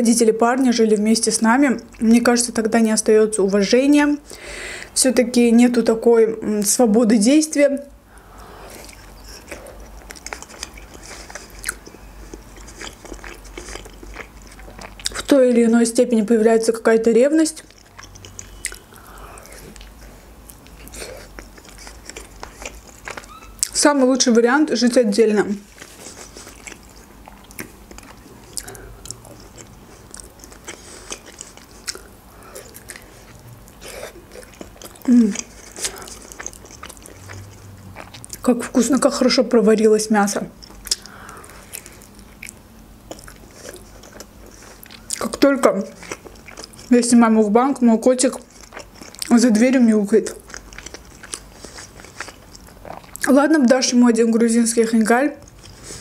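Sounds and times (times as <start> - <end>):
biting into dumpling: 8.7 - 15.2, 19.4 - 23.8, 25.6 - 38.4
person chewing with wet smacks: 8.7 - 15.4, 17.4 - 39.5, 40.3 - 54.3, 55.0 - 56.0.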